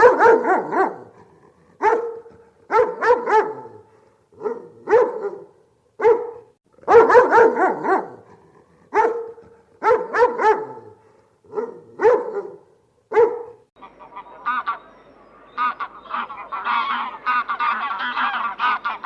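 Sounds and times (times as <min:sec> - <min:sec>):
dog barking: 0:00.0 - 0:13.6.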